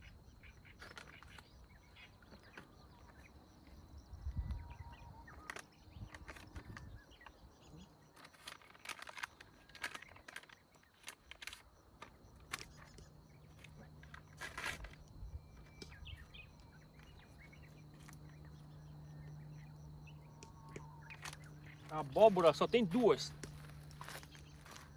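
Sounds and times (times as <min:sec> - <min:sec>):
bird chirps: 0:00.0 - 0:11.4, 0:12.0 - 0:24.9
faint rustles and clicks: 0:05.3 - 0:18.8, 0:21.0 - 0:24.9.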